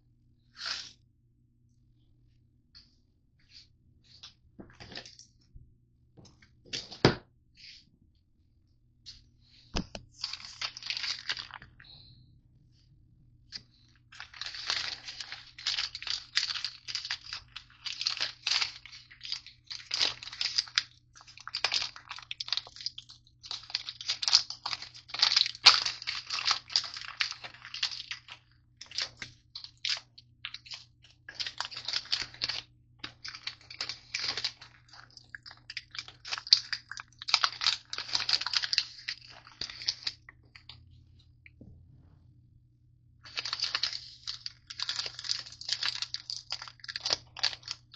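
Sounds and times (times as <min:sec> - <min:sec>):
wrapper crinkling and bars crunching: 0:04.7 - 0:05.3, 0:10.2 - 0:12.0, 0:13.7 - 0:40.9, 0:43.2 - 0:47.9.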